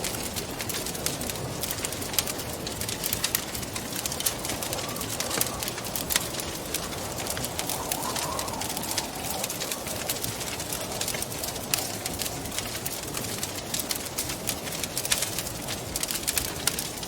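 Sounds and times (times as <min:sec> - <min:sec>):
rushing wind: 0:00.0 - 0:17.0
wood fire crackling and popping: 0:00.0 - 0:17.0
soft wavering hoot-like tone: 0:04.0 - 0:12.1.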